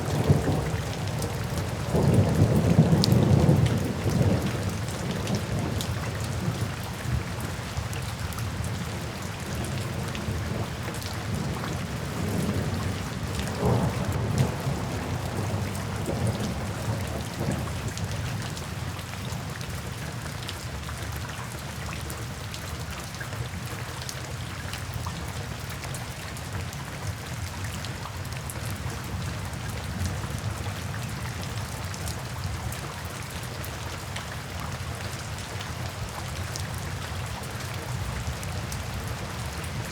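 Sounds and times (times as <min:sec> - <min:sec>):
low rumbles of thunder: 0:00.0 - 0:07.5, 0:09.5 - 0:18.6
rain falling: 0:00.0 - 0:39.9.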